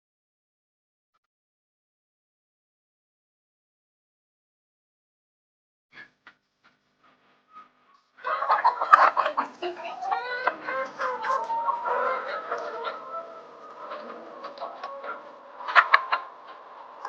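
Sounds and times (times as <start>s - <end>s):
hens clucking: 8.2s - 17.0s.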